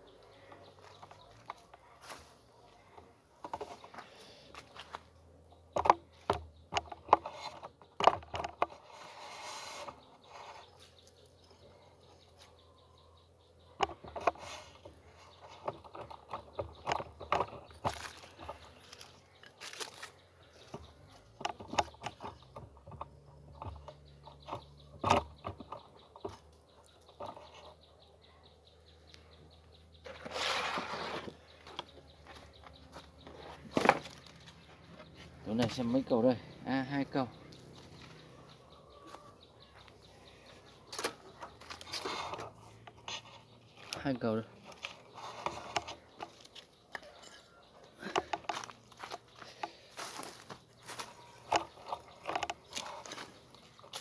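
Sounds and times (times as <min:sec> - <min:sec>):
wooden knocks and clicks: 0:05.6 - 0:08.8, 0:13.7 - 0:19.1, 0:20.6 - 0:27.9, 0:51.0 - 0:54.0
scraping rustle: 0:08.6 - 0:11.1, 0:30.0 - 0:31.6, 0:40.9 - 0:44.0.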